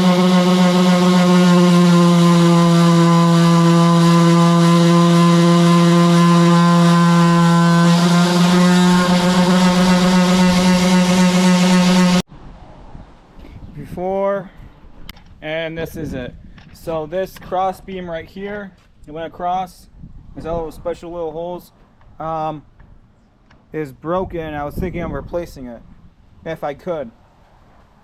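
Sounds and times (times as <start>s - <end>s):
electric sander buzzing: 0.0s - 12.2s.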